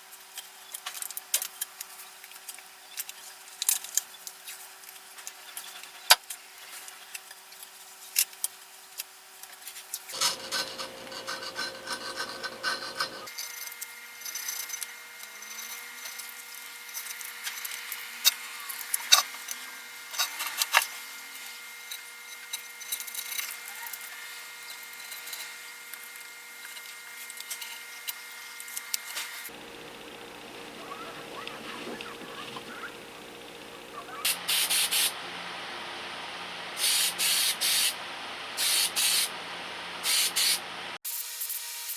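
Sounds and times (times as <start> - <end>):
scraping and rubbing of tools: 10.1 - 13.3
background hum: 10.1 - 21.1, 29.5 - 37.1.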